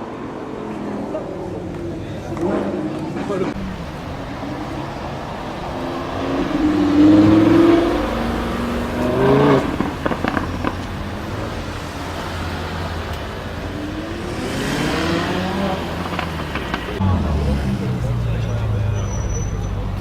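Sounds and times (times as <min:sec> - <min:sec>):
car engine revving: 0:02.3 - 0:20.0
exhaust pops: 0:06.4 - 0:11.6, 0:15.7 - 0:17.1.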